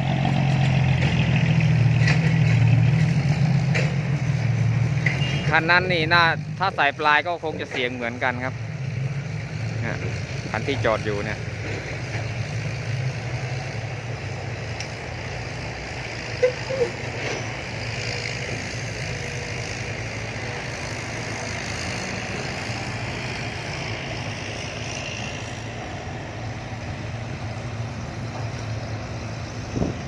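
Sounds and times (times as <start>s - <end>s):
truck engine idling: 0.0s - 30.0s
short squeaks: 16.4s - 17.5s.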